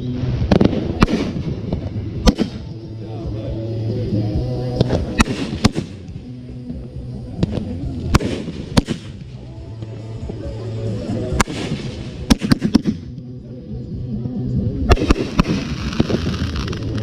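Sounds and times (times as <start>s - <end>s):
music playing: 0.0s - 17.0s
fireworks bangs: 0.2s - 2.7s, 4.8s - 6.2s, 7.4s - 9.4s, 11.3s - 13.1s, 14.9s - 17.0s.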